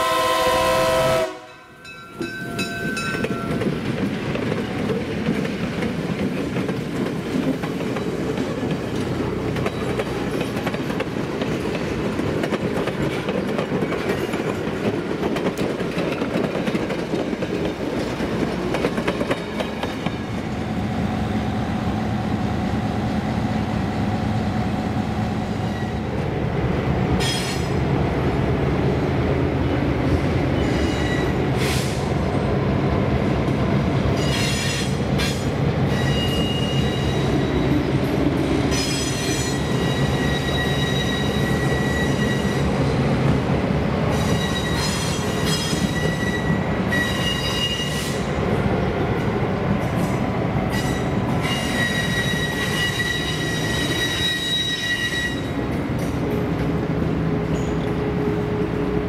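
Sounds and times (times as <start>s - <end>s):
train rolling past: 0.0s - 59.0s
train wheels squealing: 25.4s - 26.1s, 27.2s - 27.8s, 30.5s - 32.1s, 34.1s - 37.9s, 38.7s - 42.9s, 44.1s - 48.3s, 50.0s - 55.7s, 57.4s - 58.0s.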